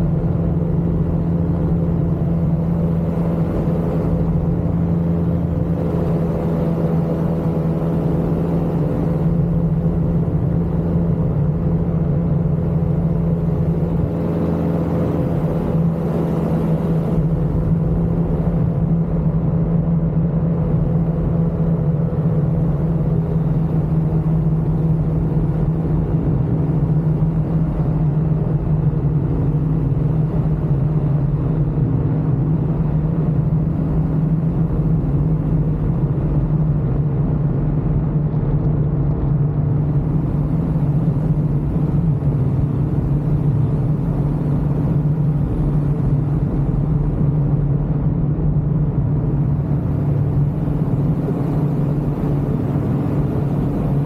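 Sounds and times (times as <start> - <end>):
aircraft engine drone: 0.0 - 19.6, 39.4 - 54.0.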